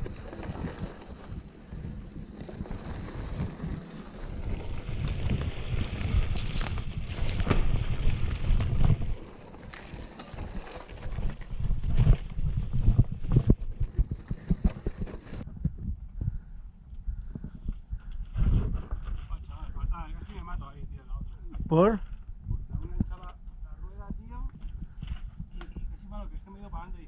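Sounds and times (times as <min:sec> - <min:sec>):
tyres rumbling on rough ground: 0:00.0 - 0:15.4
wind buffeting microphone: 0:00.0 - 0:26.0
bike knocking and rattling: 0:00.4 - 0:15.4.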